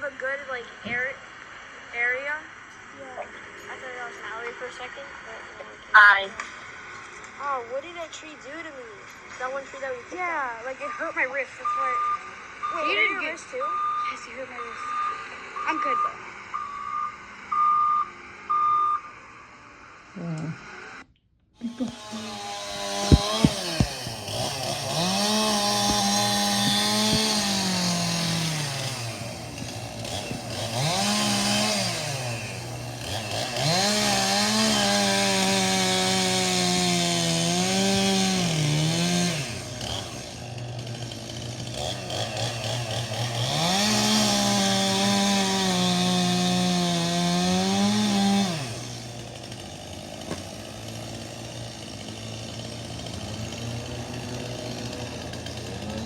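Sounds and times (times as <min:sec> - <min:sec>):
chainsaw revving: 0:09.5 - 0:16.6, 0:21.6 - 0:56.0
sharp knocks: 0:21.9 - 0:30.5.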